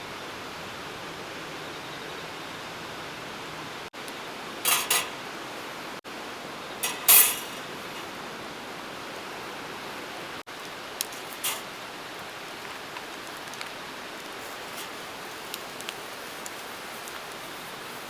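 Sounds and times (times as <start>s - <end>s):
water hiss: 4.4s - 18.0s
metal cookware clinking: 4.6s - 5.3s, 6.8s - 8.2s, 11.2s - 11.8s.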